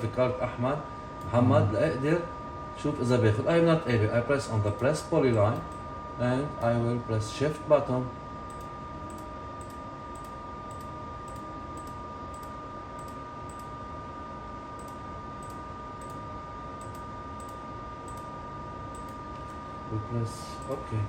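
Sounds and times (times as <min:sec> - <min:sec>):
background hum: 0:00.0 - 0:21.0
computer mouse clicking: 0:08.5 - 0:13.7, 0:14.8 - 0:16.2, 0:16.8 - 0:18.3, 0:18.9 - 0:19.6.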